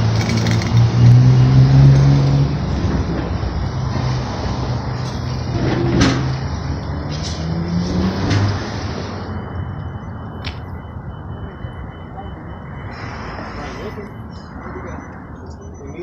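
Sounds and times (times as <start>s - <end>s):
vehicle engine running: 0.0s - 3.9s.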